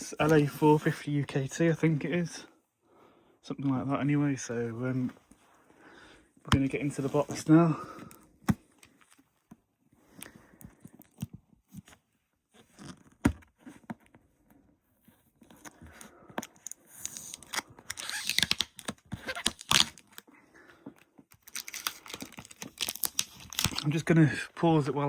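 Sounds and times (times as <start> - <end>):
packing tape ripping: 16.6 - 20.2, 21.3 - 23.8.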